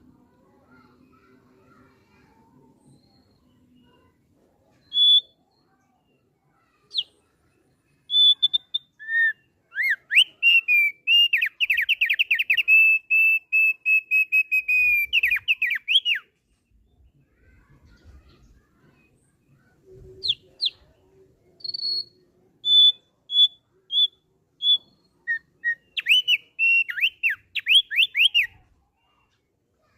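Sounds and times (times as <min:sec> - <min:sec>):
bird whistling song: 0:04.8 - 0:05.7, 0:06.8 - 0:07.2, 0:07.9 - 0:16.4, 0:20.1 - 0:20.9, 0:21.6 - 0:28.7.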